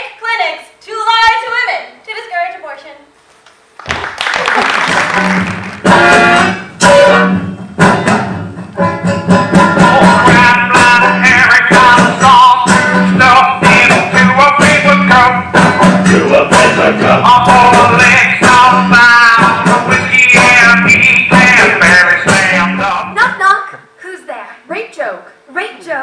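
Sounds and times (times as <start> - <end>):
sharp percussive beat: 4.9 - 7.1.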